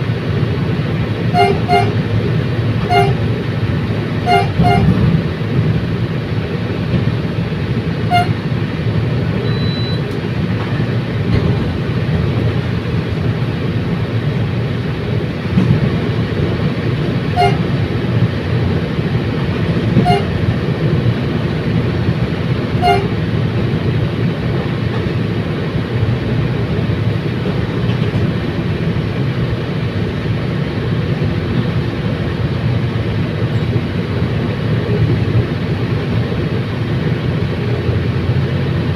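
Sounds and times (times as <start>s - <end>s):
train rumbling: 0.0s - 38.9s
short high train toots: 1.3s - 2.0s, 2.8s - 3.3s, 4.2s - 5.0s, 8.1s - 8.4s, 17.3s - 17.8s, 20.0s - 20.4s, 22.8s - 23.2s.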